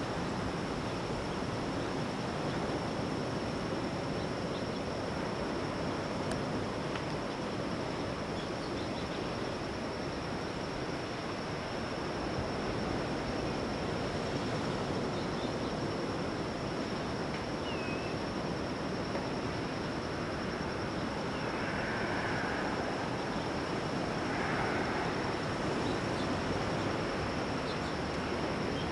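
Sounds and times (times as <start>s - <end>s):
ocean surf on a beach: 0.0s - 28.9s
thin steady high tone: 17.6s - 28.9s.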